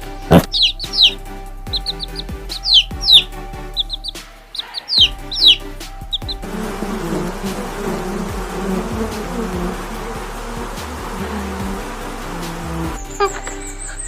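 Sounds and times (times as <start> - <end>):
background music: 0.0 - 14.0
small bird chirping: 0.3 - 6.4, 12.3 - 14.0.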